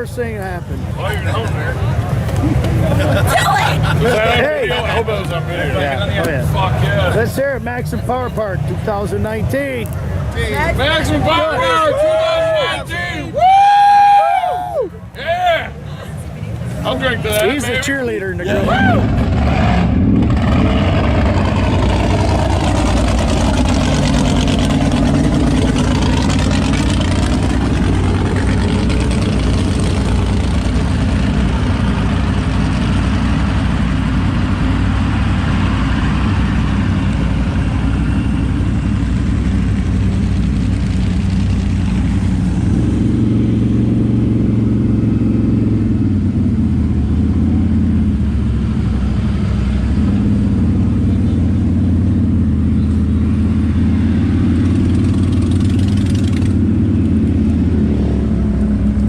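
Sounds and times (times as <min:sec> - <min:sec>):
truck engine running under load: 0:20.0 - 0:59.0.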